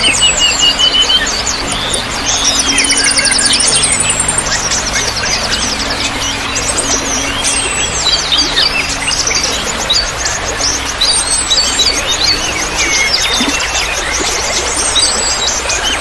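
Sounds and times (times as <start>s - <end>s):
low steady tone: 0.0s - 16.0s
songbirds chirping: 0.0s - 16.0s
trickling water: 0.0s - 16.0s.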